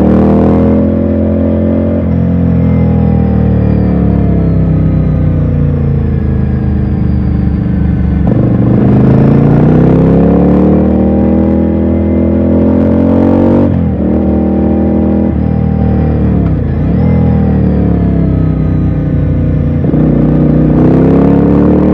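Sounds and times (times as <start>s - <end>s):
motorcycle engine accelerating: 0.0s - 21.9s.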